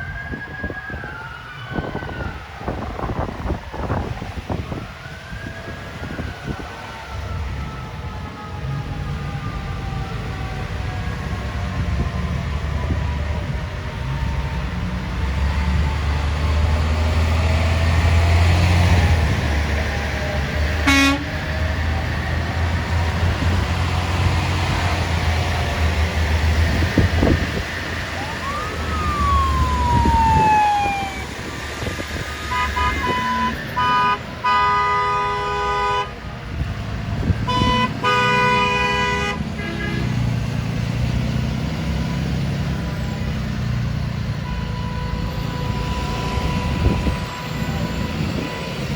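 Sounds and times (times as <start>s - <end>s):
siren sweeping down: 0.0s - 35.3s, 41.9s - 48.9s
truck engines rumbling: 0.0s - 48.9s
vehicle horns honking: 20.8s - 21.4s, 32.5s - 36.1s, 37.5s - 40.2s, 44.5s - 48.8s.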